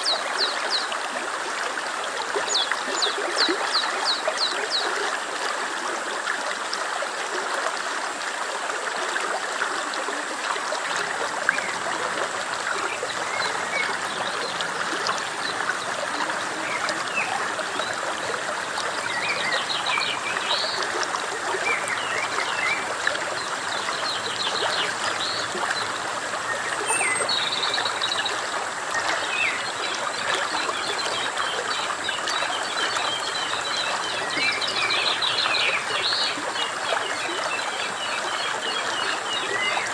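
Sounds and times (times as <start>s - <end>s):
stream running: 0.0s - 39.9s
small birds chirping: 11.1s - 28.3s.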